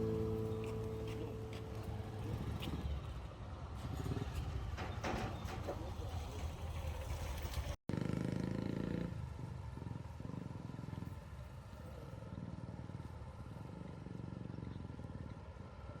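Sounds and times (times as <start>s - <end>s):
engine running steadily: 0.0s - 7.7s.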